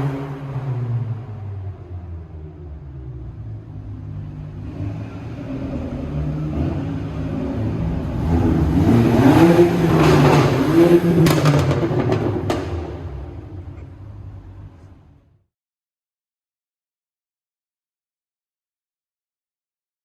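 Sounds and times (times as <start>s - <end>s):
car engine accelerating hard: 0.0s - 15.2s
sharp exhaust pops: 9.3s - 15.0s.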